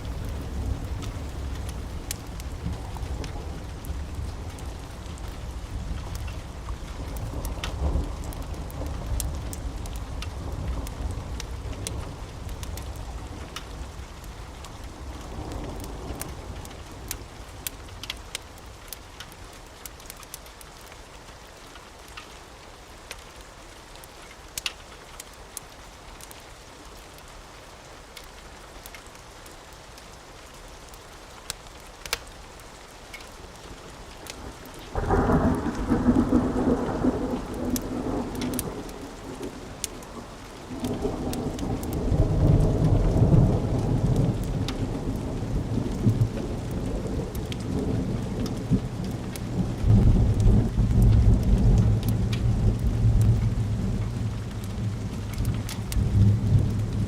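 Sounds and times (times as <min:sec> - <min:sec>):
thunder rumbling: 0:00.0 - 0:14.1, 0:34.4 - 0:57.0
light rain: 0:00.0 - 0:57.0.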